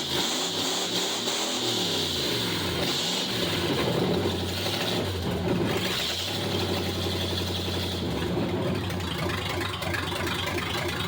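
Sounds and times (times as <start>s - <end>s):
open engine idling: 2.6s - 11.0s.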